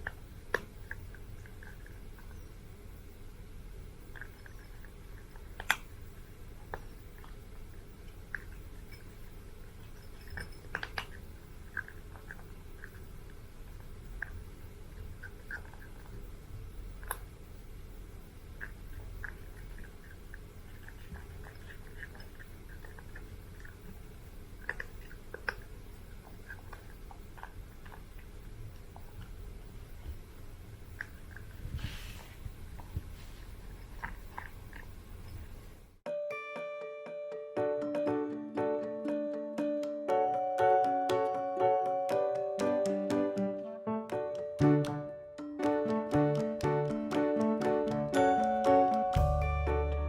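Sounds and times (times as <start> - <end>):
cat chewing and crunching food: 0.0 - 2.9, 3.8 - 36.0.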